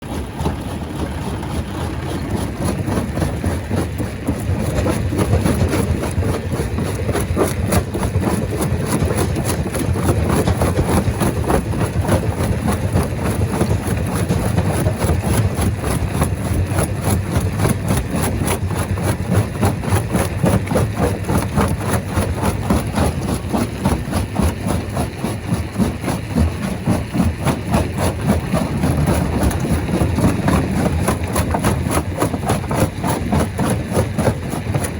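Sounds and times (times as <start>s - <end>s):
heavy engine drone: 27.6s - 33.3s.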